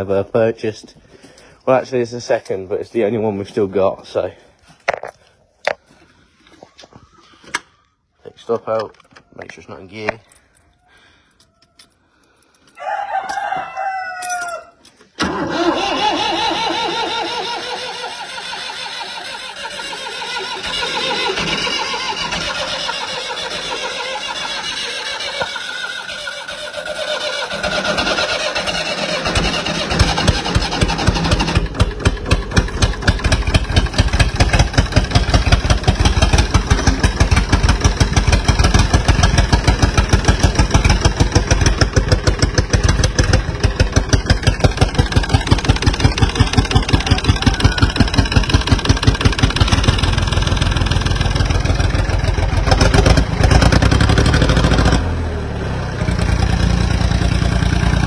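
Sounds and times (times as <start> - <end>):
tractor diesel engine starting: 15.0 - 58.0.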